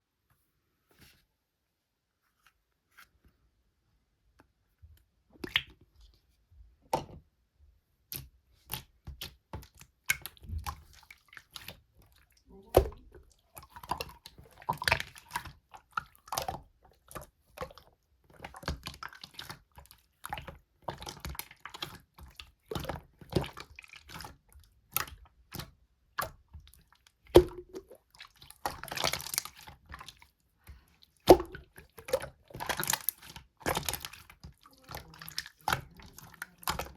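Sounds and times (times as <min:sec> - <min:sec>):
slime squishing by hand: 0:08.0 - 0:36.9.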